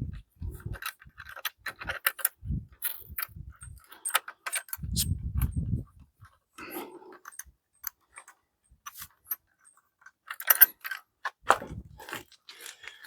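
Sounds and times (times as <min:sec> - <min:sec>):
wrench clinking on bolt: 0:07.2 - 0:11.4.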